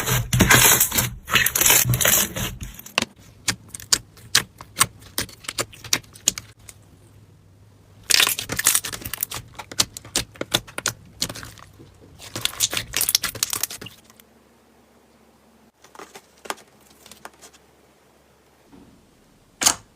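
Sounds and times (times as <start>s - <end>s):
slime squishing and crackling: 0.0s - 6.8s, 8.0s - 14.2s.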